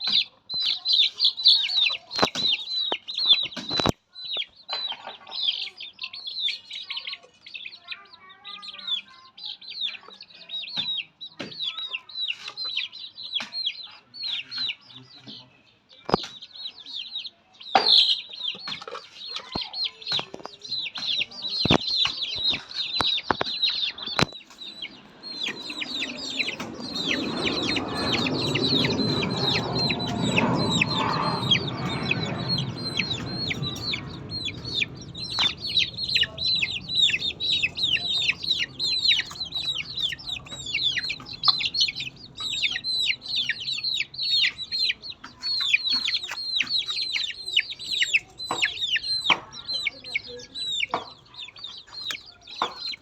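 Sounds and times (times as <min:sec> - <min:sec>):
chicks peeping: 0:00.0 - 0:53.0
rushing noise: 0:24.4 - 0:44.2.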